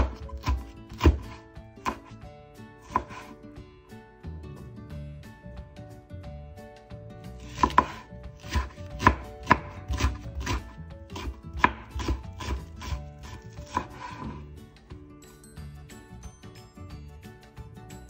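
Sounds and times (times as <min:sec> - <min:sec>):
knife tapping on cutting board: 0:07.5 - 0:10.6, 0:11.2 - 0:12.5.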